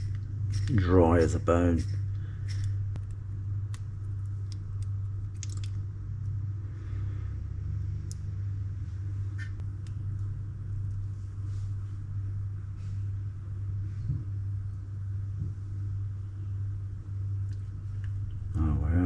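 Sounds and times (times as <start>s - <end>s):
low hum: 0.0s - 19.0s
small parts clicking: 4.5s - 5.8s.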